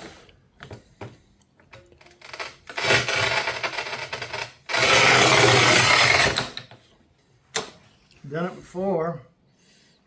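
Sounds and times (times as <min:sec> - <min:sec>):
angle grinder cutting tile: 0:02.3 - 0:06.5.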